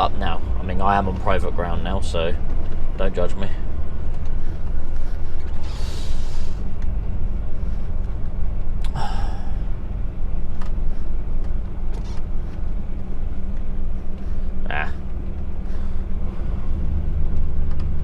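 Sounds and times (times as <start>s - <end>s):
diesel truck engine droning: 0.0s - 18.0s.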